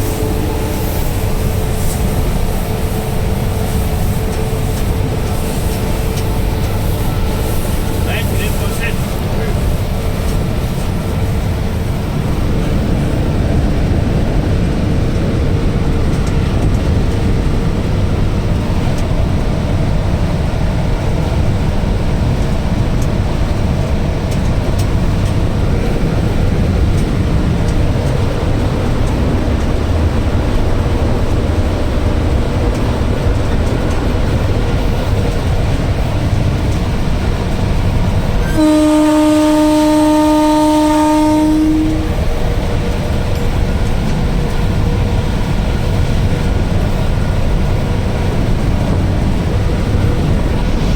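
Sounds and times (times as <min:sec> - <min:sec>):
locomotive horn blast: 0:00.0 - 0:09.3, 0:38.4 - 0:42.4
train rumbling: 0:00.0 - 0:50.9.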